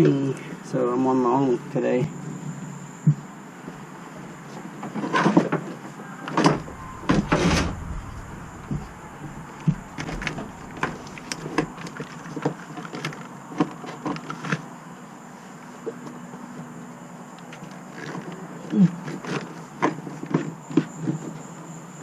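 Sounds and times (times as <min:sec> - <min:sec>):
cables dragging through hull: 0:06.2 - 0:12.4.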